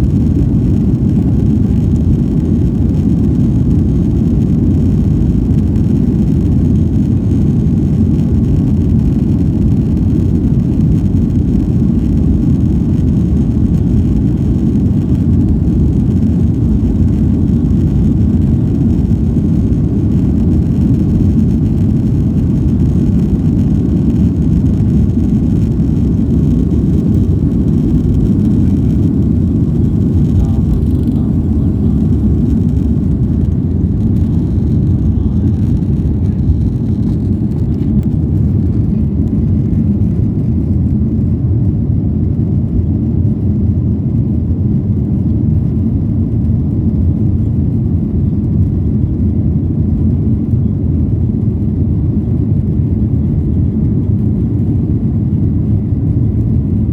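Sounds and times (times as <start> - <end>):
jet engine rumble: 0.0 - 56.9.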